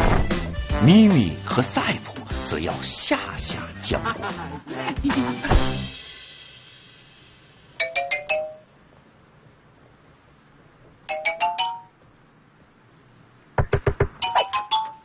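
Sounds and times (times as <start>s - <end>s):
cartoon doorbell chime: 7.8s - 8.7s, 11.1s - 12.0s, 14.2s - 15.0s
knocks on a door: 13.6s - 14.2s.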